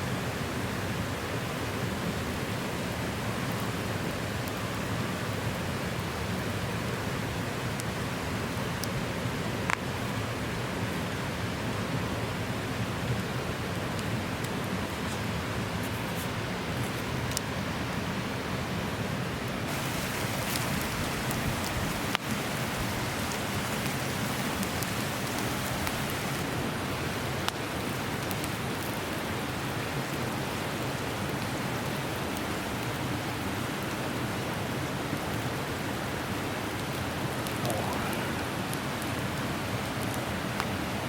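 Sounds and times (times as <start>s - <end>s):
campfire crackling: 0.1s - 41.0s
meat sizzling over fire: 19.7s - 26.5s.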